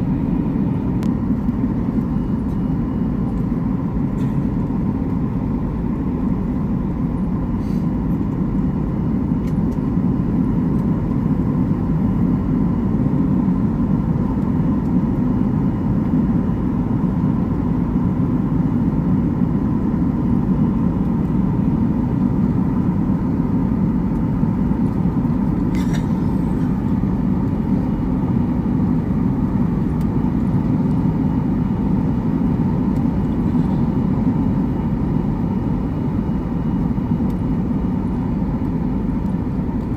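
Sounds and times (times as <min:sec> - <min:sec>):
vehicle rumble from inside cabin: 0:20.1 - 0:39.9.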